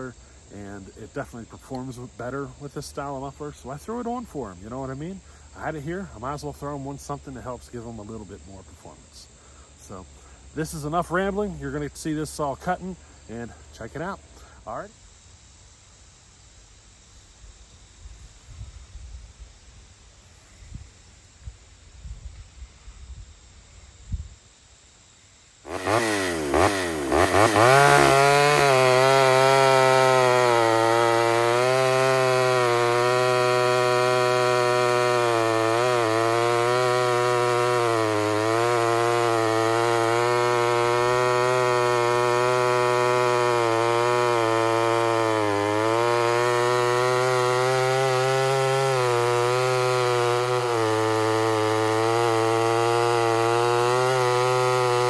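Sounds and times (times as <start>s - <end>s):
chainsaw revving and cutting wood: 0.0s - 9.3s, 9.9s - 14.1s, 25.6s - 55.0s.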